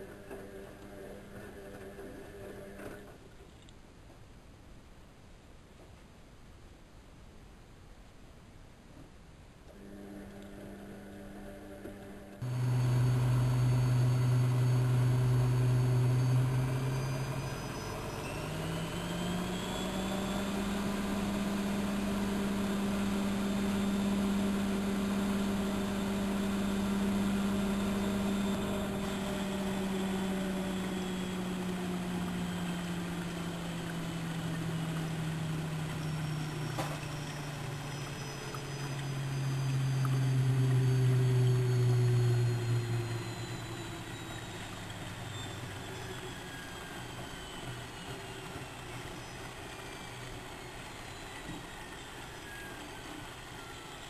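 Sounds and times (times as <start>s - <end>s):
rising whine: 9.8s - 54.0s
washing machine motor hum: 9.8s - 54.0s.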